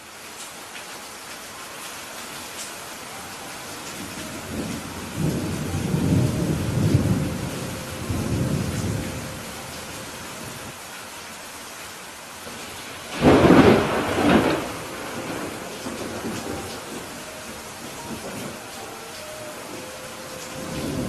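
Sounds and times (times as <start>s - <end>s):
steady rain falling: 0.0s - 21.0s
low roll of thunder: 4.2s - 9.6s, 13.1s - 18.7s.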